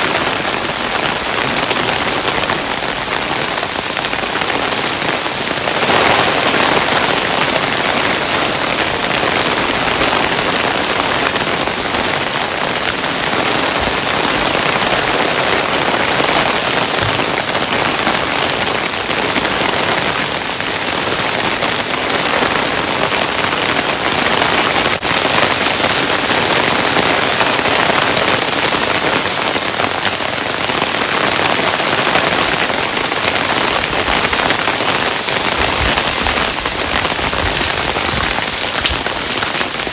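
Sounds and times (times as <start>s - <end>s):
hailstones rattling on a surface: 31.5s - 39.9s.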